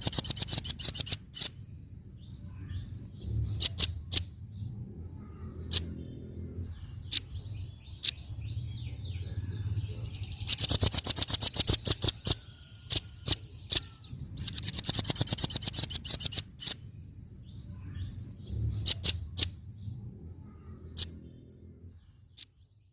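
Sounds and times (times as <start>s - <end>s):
bird chips: 0.0s - 1.7s, 10.3s - 17.0s
bird rattling trills: 0.0s - 1.7s, 10.4s - 17.0s.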